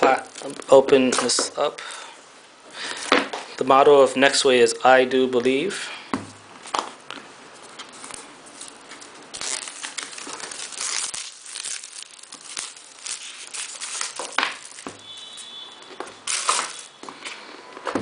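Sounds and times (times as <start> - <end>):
packaging crinkling and rustling: 0.0 - 1.4, 7.6 - 17.4.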